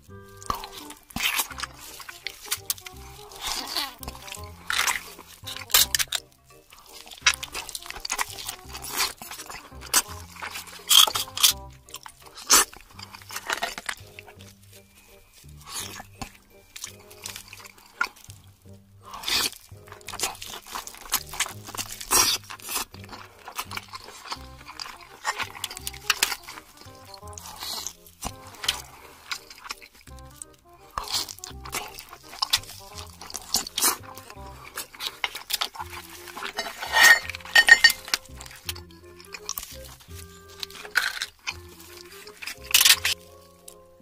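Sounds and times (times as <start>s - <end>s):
background music: 0.0s - 44.0s
crab shell crunching: 0.0s - 44.0s
tableware clinking: 36.5s - 38.2s.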